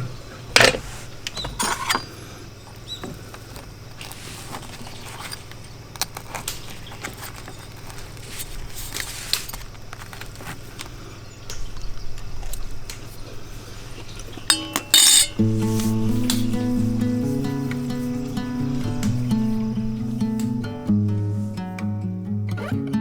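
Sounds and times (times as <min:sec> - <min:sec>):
steady low hum: 0:07.7 - 0:22.5.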